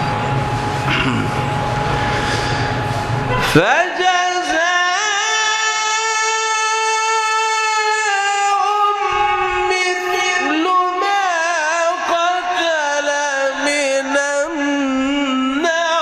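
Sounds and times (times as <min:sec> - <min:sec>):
man reciting melodically: 0:03.4 - 0:16.0.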